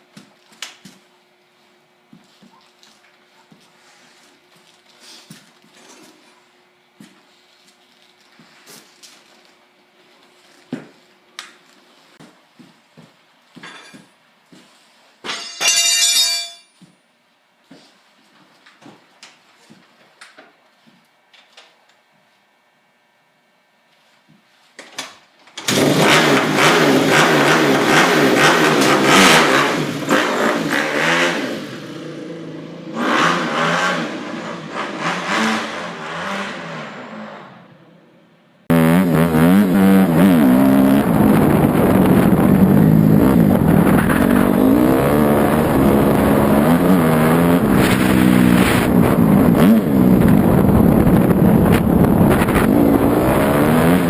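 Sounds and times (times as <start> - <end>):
loud steady engine: 25.6 - 37.3, 38.7 - 54.0
dirt bike engine revving: 25.7 - 37.4, 38.7 - 54.0.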